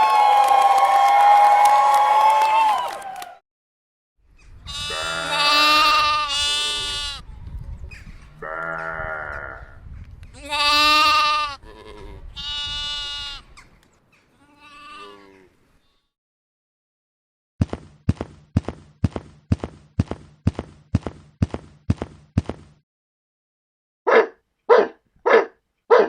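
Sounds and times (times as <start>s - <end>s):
animal bleating: 4.6s - 7.2s, 8.4s - 9.8s, 10.4s - 13.5s, 14.4s - 16.1s.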